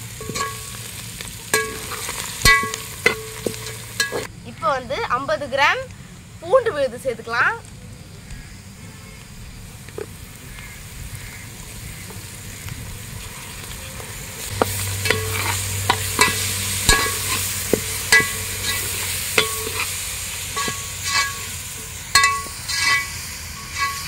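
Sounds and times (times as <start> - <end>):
food sizzling in oil: 0.0 - 4.3, 8.4 - 24.0
metal spoon scraping pot: 14.6 - 24.0.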